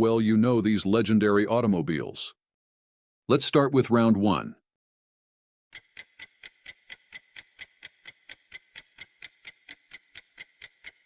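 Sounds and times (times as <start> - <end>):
clock ticking quickly: 5.7 - 11.0.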